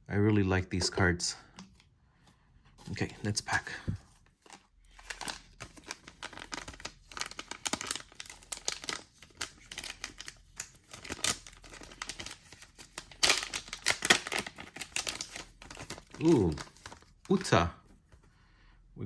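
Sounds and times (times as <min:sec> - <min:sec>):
wrapper crinkling and tearing: 0:03.2 - 0:17.5
loud wrapper rip: 0:05.0 - 0:16.9.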